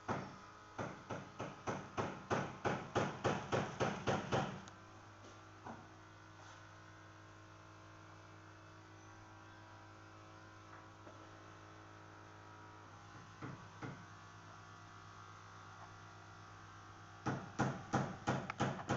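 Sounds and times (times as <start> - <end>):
faint electrical mains hum: 0.0 - 18.9.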